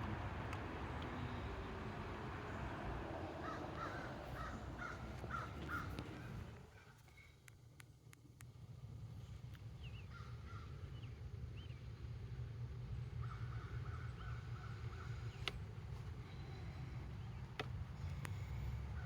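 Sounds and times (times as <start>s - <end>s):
steady low rumble: 8.2s - 19.0s.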